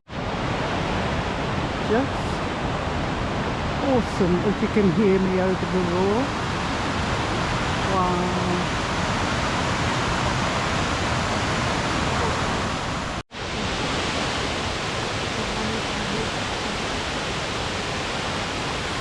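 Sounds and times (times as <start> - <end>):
waterfall roaring: 0.1 - 19.0.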